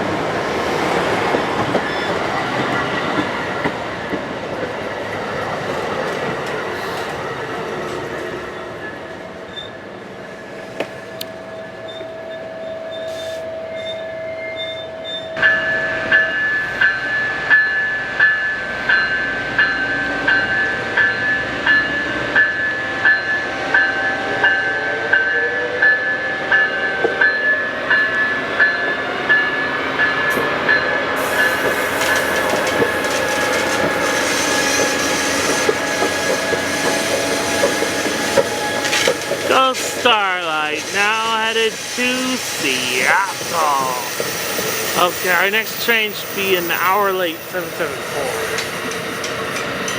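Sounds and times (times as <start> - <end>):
passenger train passing: 0.0 - 49.9.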